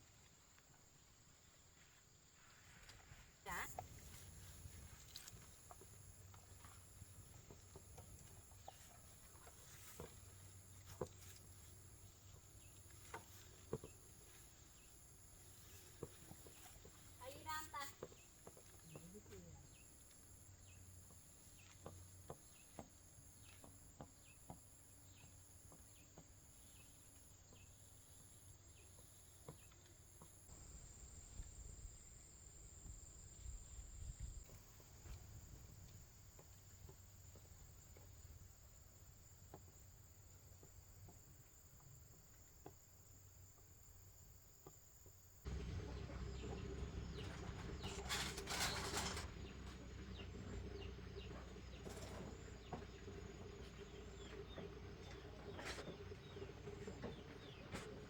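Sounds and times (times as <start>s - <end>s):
rustling: 47.4s - 49.7s.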